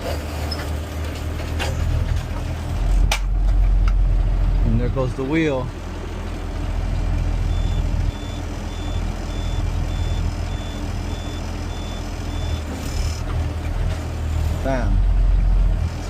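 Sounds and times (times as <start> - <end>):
truck engine idling: 0.0 - 16.0
reversing alarm beeping: 7.5 - 12.7.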